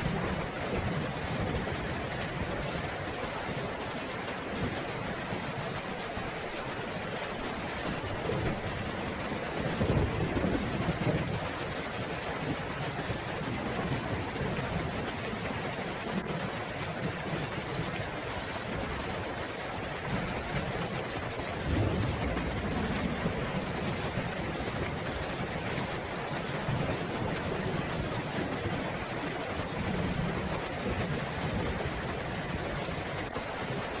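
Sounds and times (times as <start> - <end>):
heavy rain hissing: 17.0 - 34.0
thunder rolling: 21.5 - 25.7.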